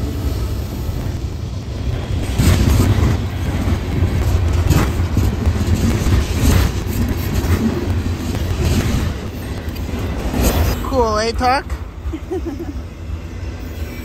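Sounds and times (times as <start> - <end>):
train rumbling past: 0.0 - 14.0
wheels clacking over rail joints: 1.9 - 10.9.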